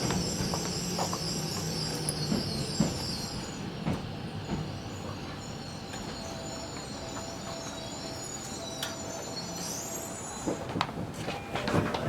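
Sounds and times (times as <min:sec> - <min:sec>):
wheels clacking over rail joints: 0:10.4 - 0:12.0.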